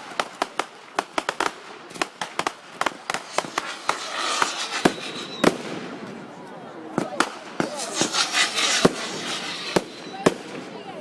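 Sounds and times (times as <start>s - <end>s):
fireworks bangs and crackles: 0.0s - 11.0s
firework rising hiss: 2.8s - 6.4s, 7.1s - 10.9s.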